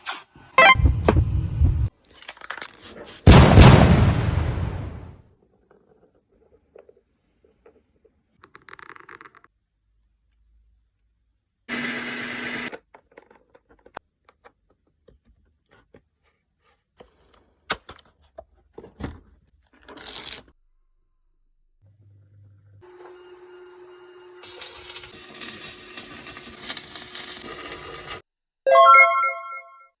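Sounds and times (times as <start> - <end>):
power tool bursts: 11.7 - 12.7.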